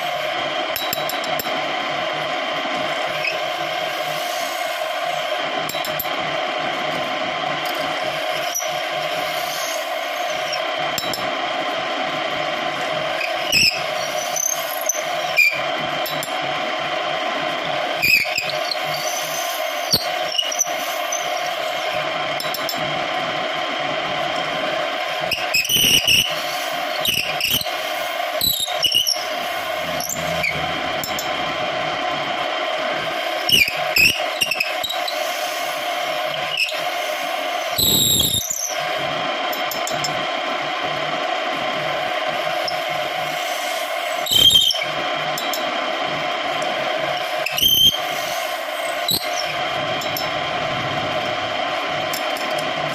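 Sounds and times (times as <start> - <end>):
lathe motor humming: 26.2 - 38.1, 44.9 - 52.9
high squeals: 28.4 - 31.8.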